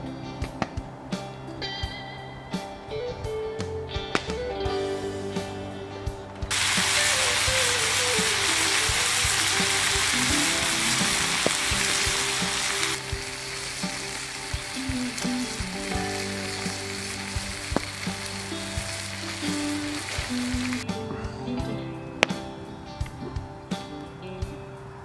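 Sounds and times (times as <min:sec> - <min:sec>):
music with held notes: 0:00.0 - 0:25.0
food sizzling in hot oil: 0:06.5 - 0:20.8
oil popping: 0:06.5 - 0:20.8.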